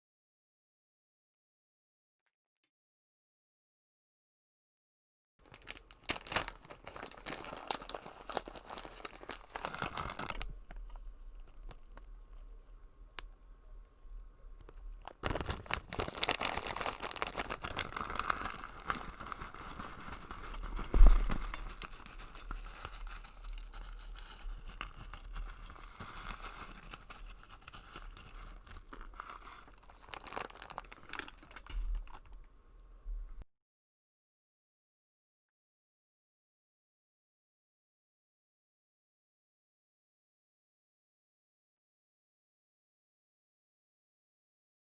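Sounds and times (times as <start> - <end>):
chewing noodles: 5.5 - 32.5.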